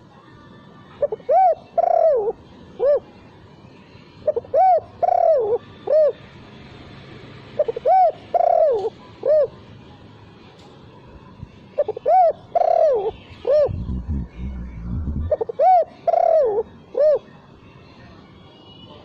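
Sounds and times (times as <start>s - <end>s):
dove cooing: 1.2s - 3.0s, 4.3s - 6.2s, 7.6s - 9.6s, 11.8s - 17.2s.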